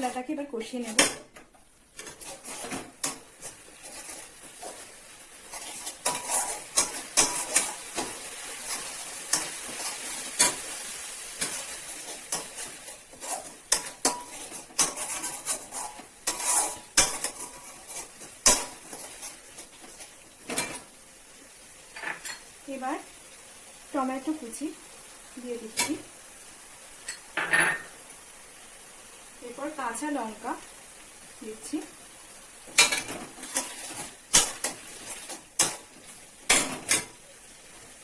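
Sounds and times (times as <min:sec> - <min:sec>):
frying sizzle: 0:00.0 - 0:38.0
spatula scraping a pan: 0:02.0 - 0:20.9, 0:32.7 - 0:37.9.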